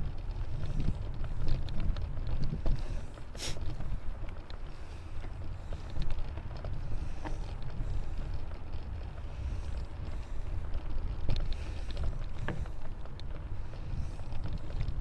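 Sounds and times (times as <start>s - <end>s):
bike clicks and knocks: 0.0s - 15.0s
tyres on gravel: 0.0s - 15.0s
wind buffeting microphone: 0.0s - 15.0s.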